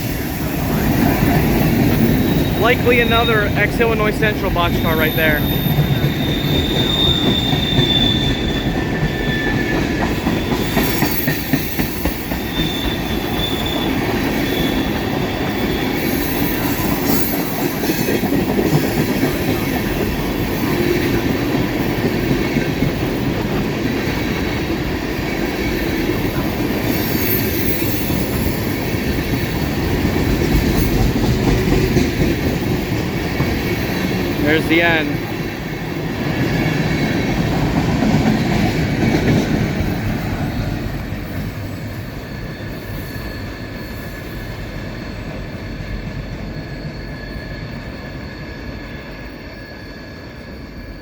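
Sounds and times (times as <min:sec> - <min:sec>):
freight train rolling past: 0:00.0 - 0:51.0
high wheel squeals: 0:00.8 - 0:03.6, 0:04.7 - 0:17.6.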